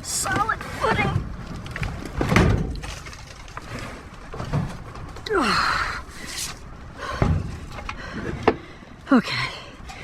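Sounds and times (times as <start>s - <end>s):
man breathing effortfully: 5.5s - 10.0s.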